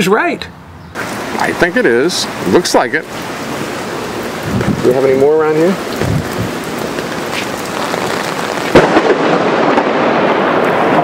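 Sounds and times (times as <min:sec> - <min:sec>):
steady rain: 0:01.0 - 0:11.0
thunder crack: 0:04.2 - 0:05.2, 0:05.8 - 0:11.0.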